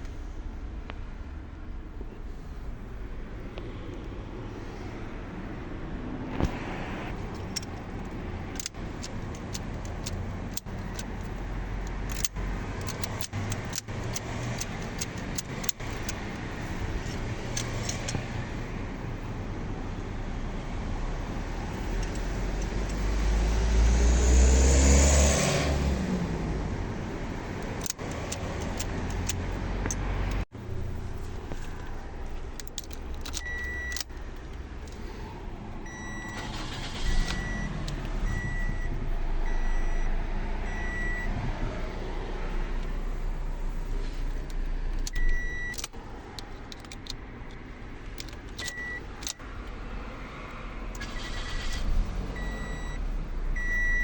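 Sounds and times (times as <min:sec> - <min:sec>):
car engine starting and idling: 0:00.0 - 0:54.0
keys clicking and jangling: 0:07.2 - 0:18.2, 0:21.8 - 0:23.1, 0:27.5 - 0:35.2, 0:43.8 - 0:49.4
high electronic warning beep: 0:53.6 - 0:54.0.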